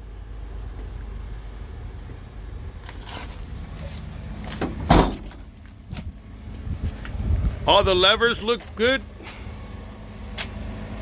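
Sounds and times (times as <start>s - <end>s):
low steady rumble: 0.0s - 11.0s
loud sharp thump: 4.6s - 5.4s.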